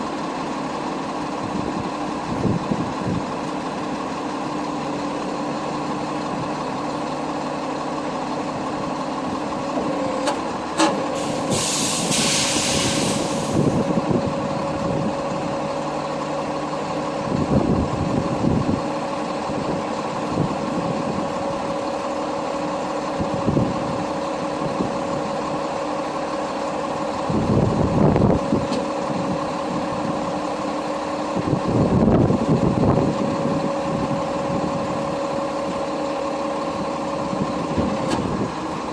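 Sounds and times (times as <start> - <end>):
diesel truck engine running: 0.0 - 38.9
air brake hiss: 11.1 - 13.7.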